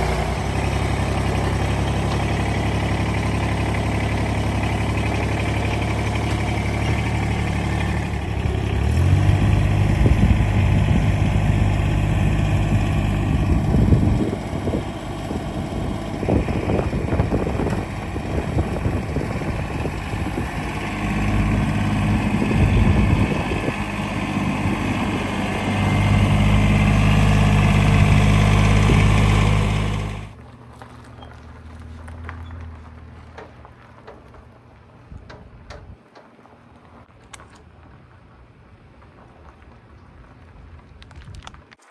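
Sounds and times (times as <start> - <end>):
vehicle engine revving: 0.0 - 30.4.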